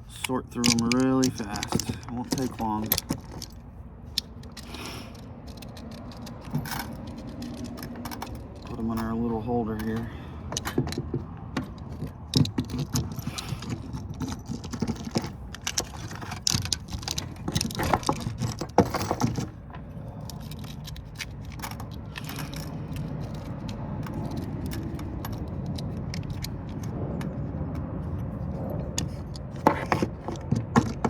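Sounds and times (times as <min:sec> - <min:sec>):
steel screws clinking: 0:00.0 - 0:27.4
low background hum: 0:00.0 - 0:31.0.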